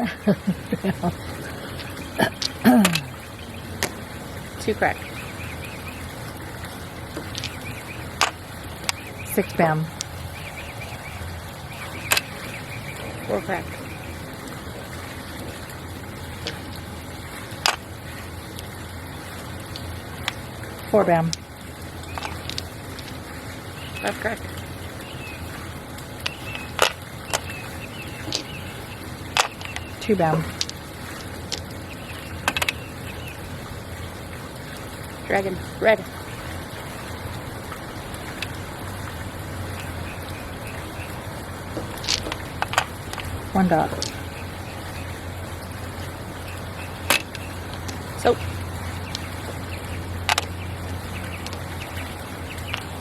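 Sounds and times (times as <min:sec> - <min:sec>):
steady low hum: 0:00.0 - 0:53.0
faint clicks: 0:22.0 - 0:23.2.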